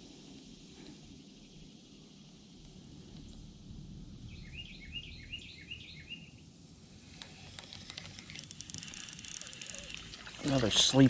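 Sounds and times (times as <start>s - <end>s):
low steady rumble: 0.0s - 7.6s
songbird singing: 0.0s - 11.0s
faint clicks and rustling: 7.0s - 10.9s.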